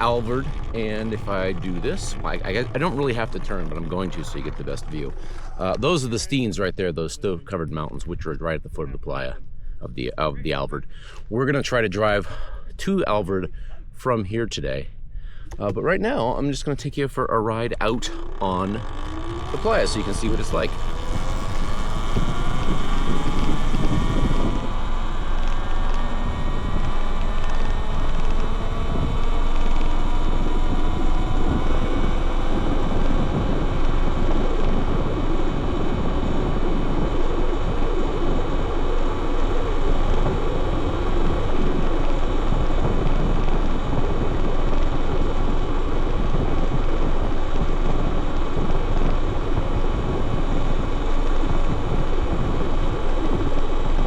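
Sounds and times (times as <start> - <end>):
electric motor whine: 0.0 - 6.0, 17.8 - 54.0
wind rushing over microphone: 0.0 - 54.0.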